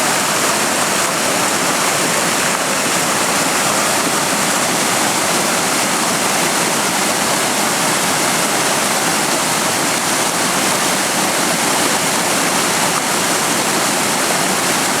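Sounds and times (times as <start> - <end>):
waterfall splashing: 0.0 - 15.0.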